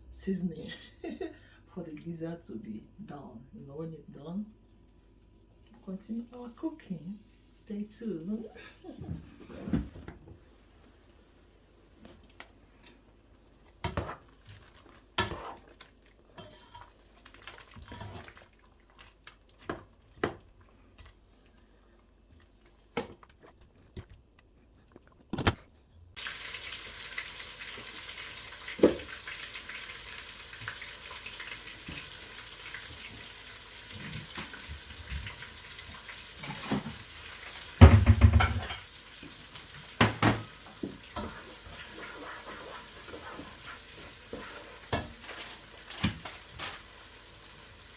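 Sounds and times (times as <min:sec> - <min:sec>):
spoon scraping and stirring: 0:14.0 - 0:19.8, 0:41.2 - 0:45.6
food sizzling in a pot: 0:26.2 - 0:47.9.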